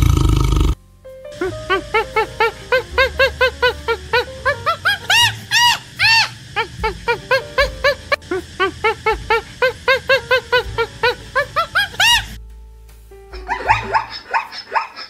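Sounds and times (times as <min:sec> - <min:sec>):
small dog yapping: 0:13.4 - 0:15.0.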